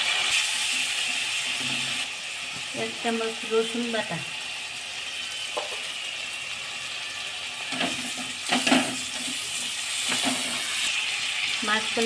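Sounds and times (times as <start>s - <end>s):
food sizzling in hot oil: 0.0s - 12.0s
spatula scraping a pan: 7.7s - 11.3s.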